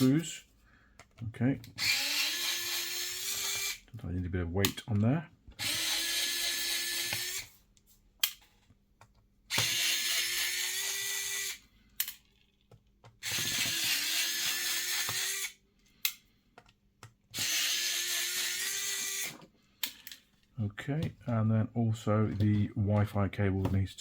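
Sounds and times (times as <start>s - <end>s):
electric screwdriver running: 1.8s - 3.8s, 5.6s - 7.5s, 9.5s - 11.6s, 13.2s - 15.6s, 17.3s - 19.4s.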